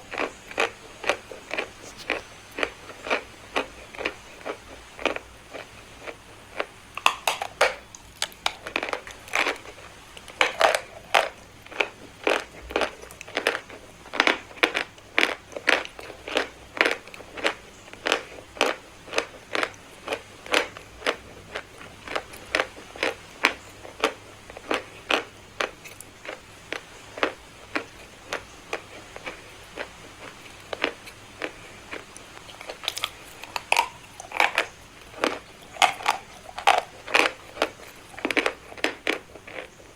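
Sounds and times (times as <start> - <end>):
chalk crunching: 1.0 - 2.7.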